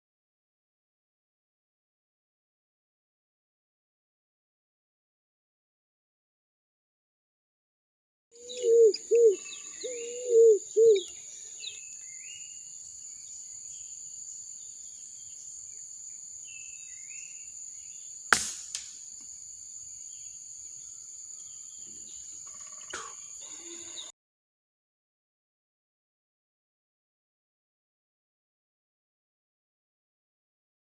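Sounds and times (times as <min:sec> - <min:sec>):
bird low arched calls: 0:08.4 - 0:11.8, 0:22.5 - 0:24.1
bird chirps: 0:08.4 - 0:14.0, 0:20.1 - 0:24.1
insect drone: 0:08.4 - 0:24.1
sharp crack: 0:18.3 - 0:19.1.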